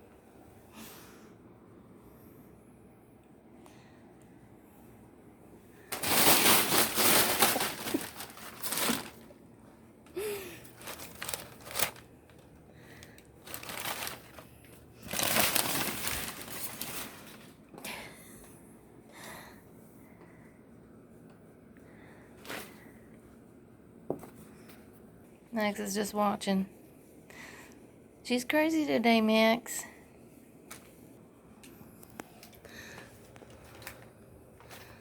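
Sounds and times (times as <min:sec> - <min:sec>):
packing paper crinkling: 0:05.9 - 0:09.4, 0:10.2 - 0:17.6, 0:33.1 - 0:35.0.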